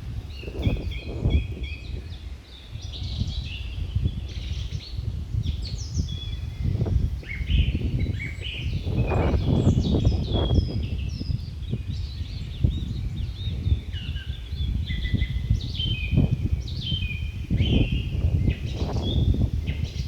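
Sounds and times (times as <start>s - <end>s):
low rumbling outdoor noise: 0.0s - 20.0s
small birds chirping: 0.0s - 20.0s.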